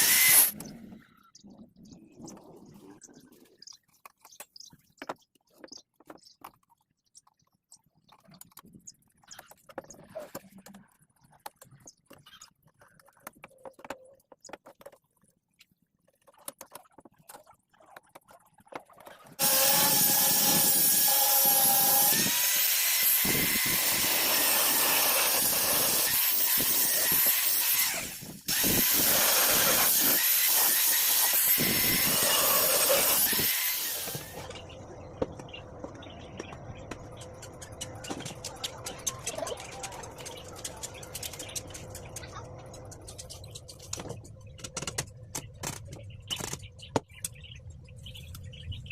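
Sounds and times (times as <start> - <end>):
power tool on steel: 0.0 - 0.6, 19.4 - 34.5.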